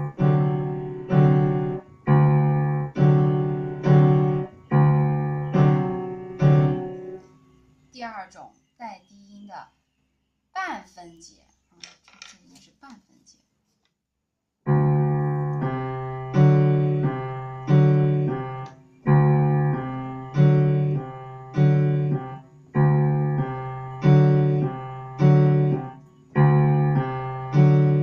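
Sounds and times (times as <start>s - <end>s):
piano chords: 0.0s - 7.5s, 14.7s - 28.0s.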